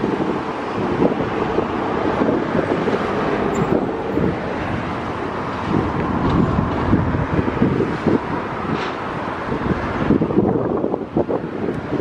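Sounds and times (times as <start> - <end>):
freight train wheels rumbling: 0.0 - 10.0.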